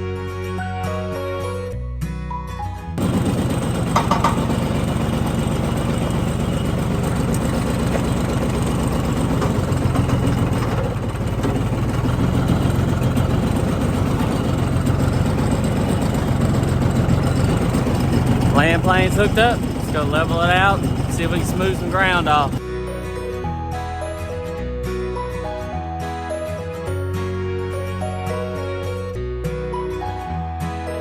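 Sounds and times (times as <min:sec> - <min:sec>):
tractor engine idling: 0:03.0 - 0:22.6.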